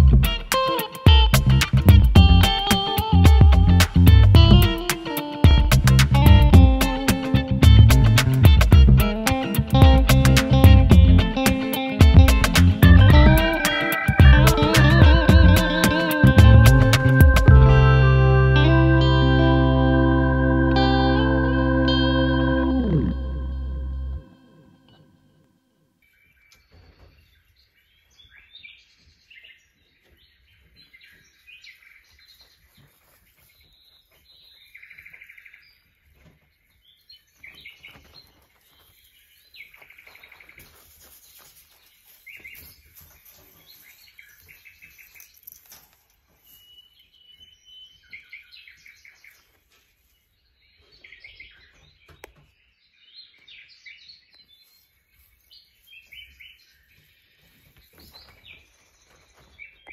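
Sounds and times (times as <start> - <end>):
small birds chirping and trilling: 12.9 - 17.4, 26.0 - 59.9.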